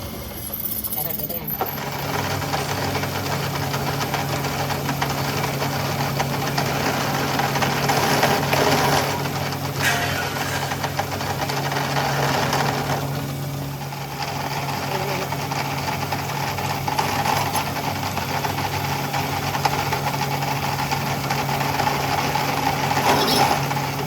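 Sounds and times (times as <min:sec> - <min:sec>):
workshop machine rattling and scraping: 0:00.0 - 0:24.0.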